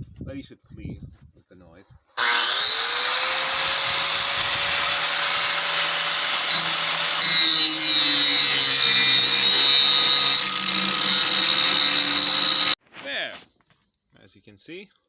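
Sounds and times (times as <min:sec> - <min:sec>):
power grinder sharpening metal: 0:02.2 - 0:12.8.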